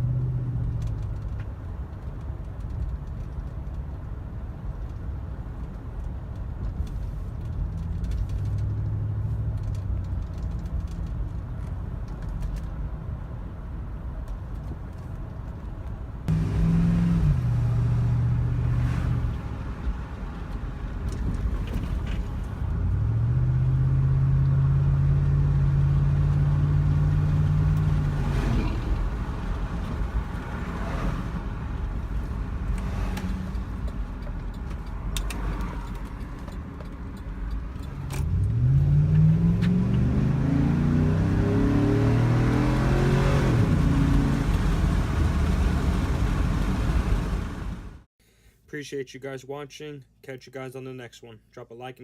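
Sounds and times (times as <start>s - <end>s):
engine exhaust revving: 16.3s - 19.4s.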